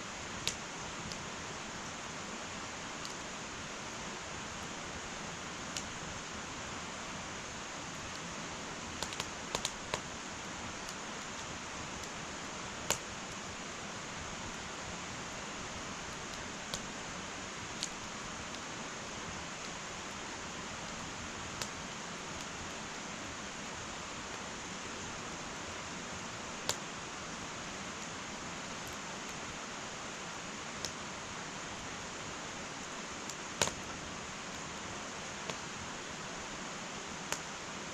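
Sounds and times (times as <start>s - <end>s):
fire hissing: 0.0s - 37.9s
wood fire pops and crackles: 0.2s - 1.8s, 2.8s - 3.8s, 4.4s - 6.4s, 7.5s - 13.7s, 15.5s - 23.0s, 26.1s - 27.0s, 30.7s - 31.0s, 32.8s - 36.5s, 37.2s - 37.6s.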